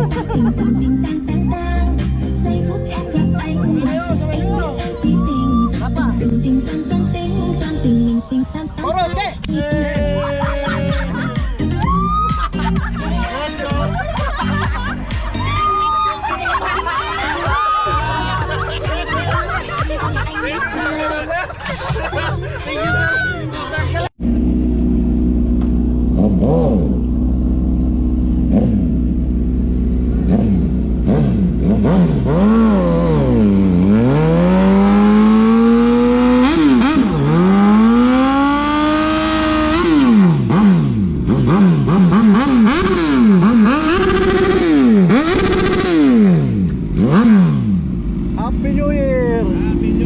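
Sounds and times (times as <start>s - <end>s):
motorcycle engine revving: 24.1s - 50.0s
low rumble: 24.2s - 34.6s.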